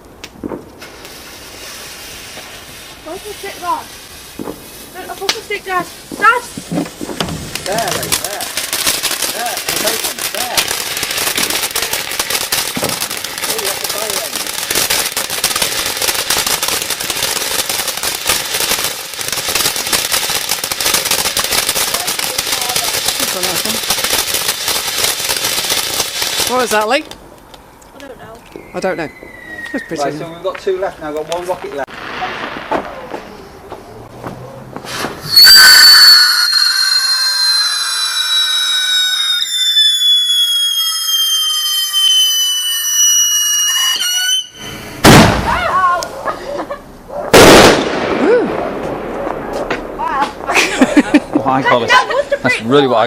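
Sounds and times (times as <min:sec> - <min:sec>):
firework crackling: 0:00.0 - 0:53.0
firework screaming whistle: 0:28.5 - 0:30.4, 0:34.9 - 0:45.6.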